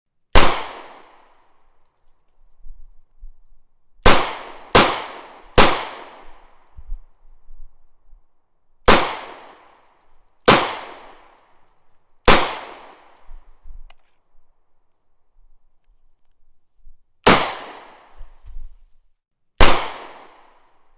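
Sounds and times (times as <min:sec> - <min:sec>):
gunshots with ringing tail: 0:00.3 - 0:01.3, 0:04.0 - 0:06.4, 0:08.9 - 0:09.7, 0:10.5 - 0:11.3, 0:12.2 - 0:13.2, 0:17.2 - 0:18.1, 0:19.6 - 0:20.7.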